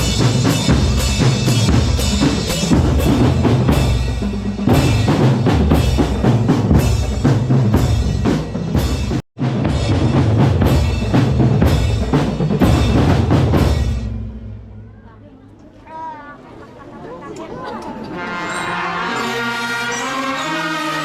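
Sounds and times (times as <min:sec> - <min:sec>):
bass drums and snare drums: 0:00.0 - 0:14.6.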